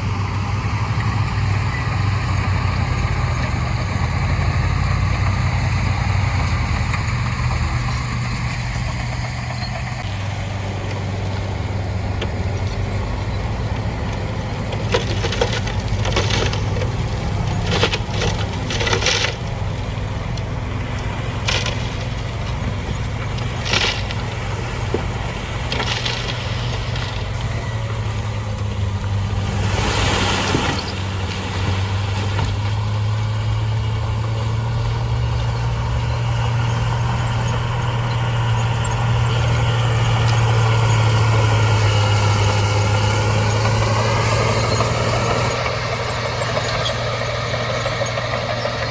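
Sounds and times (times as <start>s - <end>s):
heavy diesel engine droning: 0.0s - 48.9s
gravel and stone being dumped: 7.9s - 33.2s, 39.1s - 48.9s.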